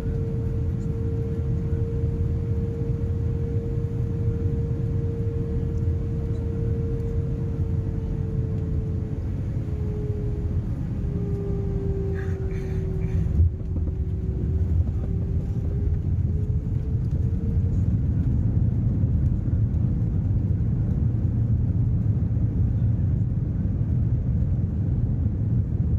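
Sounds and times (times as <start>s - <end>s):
humming tone: 0.0s - 19.8s
airliner cabin engine rumble: 0.0s - 25.9s.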